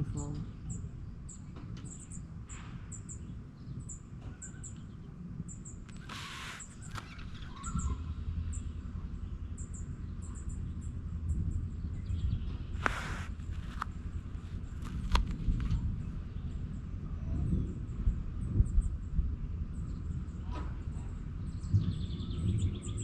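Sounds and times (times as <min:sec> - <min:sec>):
small birds chirping: 0:00.0 - 0:19.0, 0:19.7 - 0:23.0
brief rustling: 0:05.9 - 0:07.6, 0:12.8 - 0:15.8.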